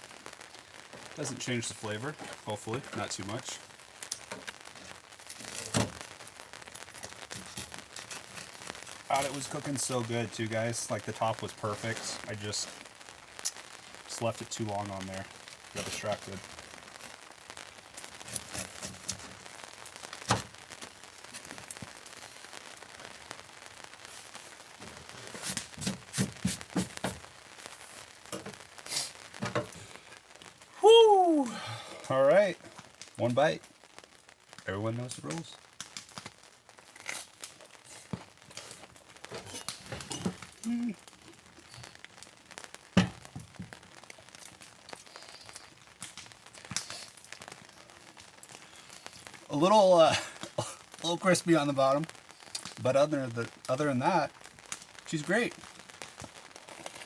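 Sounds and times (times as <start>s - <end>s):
rain hissing: 0.0s - 57.0s
crunch of biting pizza crust: 36.9s - 38.7s
faint chewing: 56.6s - 57.0s.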